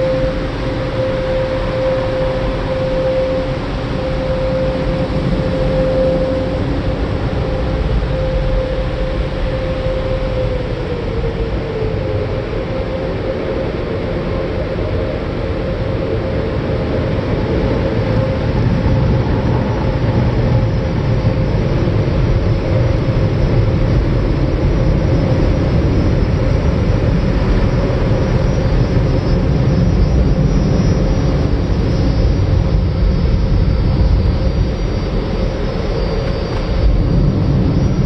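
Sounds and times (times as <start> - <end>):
faint high whine: 0.0 - 38.0.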